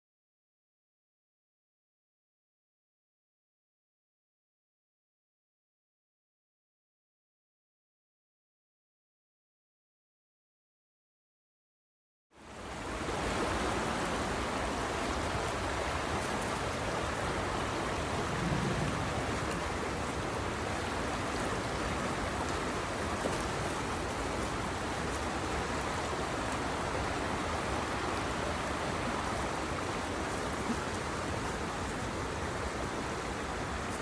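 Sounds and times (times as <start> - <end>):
creek water rushing: 12.4 - 34.0.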